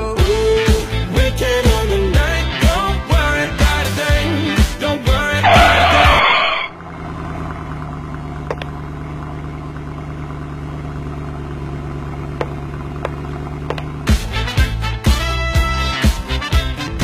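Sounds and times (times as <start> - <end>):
music: 0.0 - 6.6, 14.0 - 17.0
car engine idling: 0.0 - 17.0.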